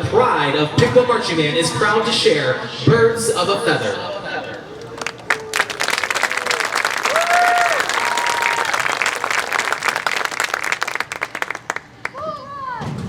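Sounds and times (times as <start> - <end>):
crowd applauding and cheering: 4.8 - 12.2
drawn-out whoops: 5.3 - 11.6.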